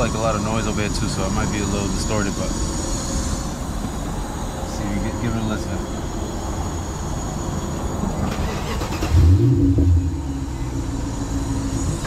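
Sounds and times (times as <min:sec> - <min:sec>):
engine starting and idling: 0:07.9 - 0:12.0.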